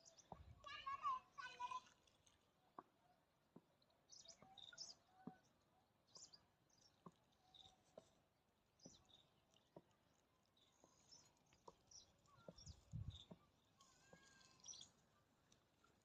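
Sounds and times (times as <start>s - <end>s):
faint bird chirps: 3.8s - 8.1s, 8.8s - 15.2s.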